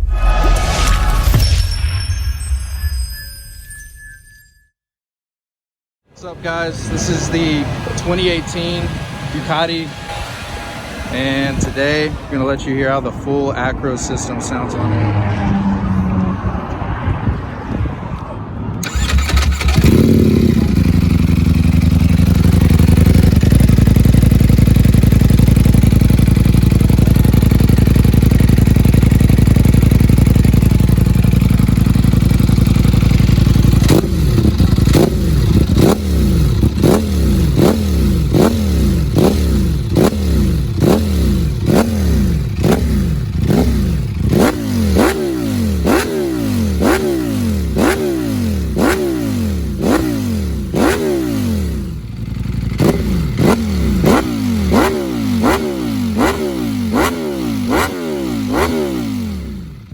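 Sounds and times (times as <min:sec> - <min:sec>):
engine throttle blips: 0:06.1 - 0:17.9, 0:18.7 - 0:59.9
motorcycle engine idling: 0:18.8 - 0:59.9.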